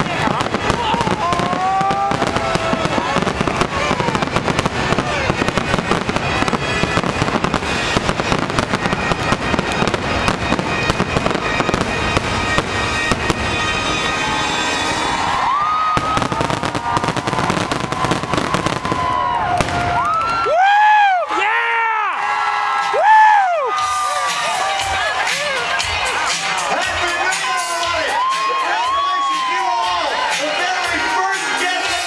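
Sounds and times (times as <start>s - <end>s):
fireworks bursting: 0.0s - 20.5s.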